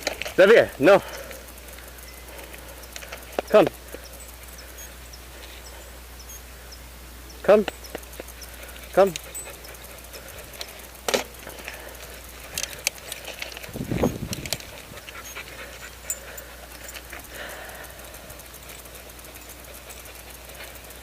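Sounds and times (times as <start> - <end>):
clicks: 7.5 - 15.4
dog panting: 7.9 - 21.0.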